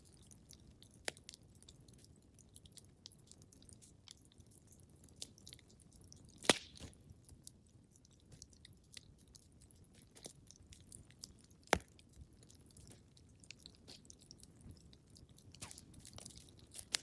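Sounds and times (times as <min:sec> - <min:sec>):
wood fire crackling: 0:00.0 - 0:17.0
fire pops: 0:06.4 - 0:07.0, 0:11.7 - 0:12.0.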